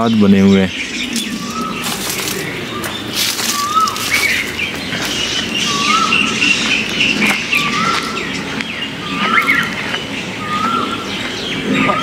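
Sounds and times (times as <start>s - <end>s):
birds chirping: 0.0s - 12.0s
bird whistling rising note: 3.5s - 4.4s.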